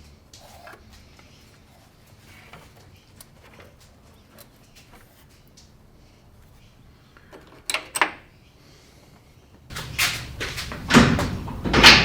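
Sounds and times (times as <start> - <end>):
sharp knocks: 9.7 - 12.0
tools clattering: 9.7 - 12.0.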